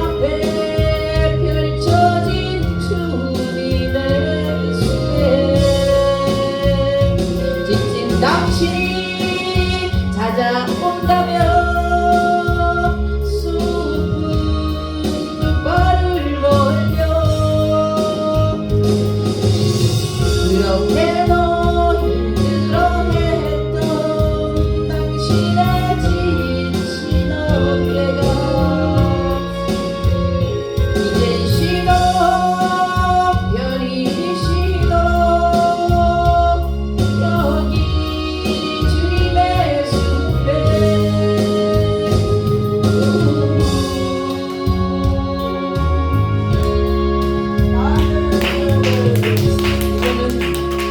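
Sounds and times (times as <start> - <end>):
instrumental accompaniment: 0.0 - 50.9.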